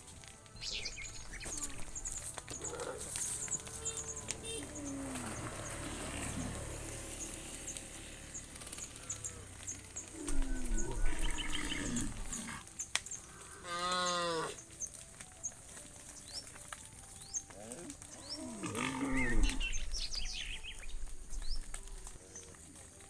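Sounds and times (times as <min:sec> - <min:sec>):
cows mooing: 0:01.2 - 0:07.1, 0:08.0 - 0:12.7, 0:13.3 - 0:14.6, 0:17.6 - 0:19.9.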